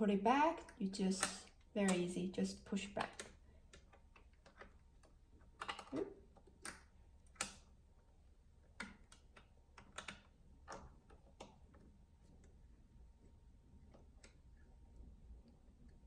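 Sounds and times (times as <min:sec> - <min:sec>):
faint clicks and taps: 0:02.8 - 0:07.8, 0:08.6 - 0:16.0.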